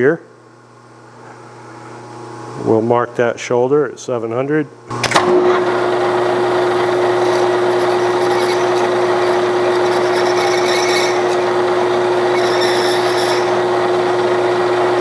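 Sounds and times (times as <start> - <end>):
metal lathe running: 5.4 - 15.0
cutting tool scratching metal: 6.6 - 15.0.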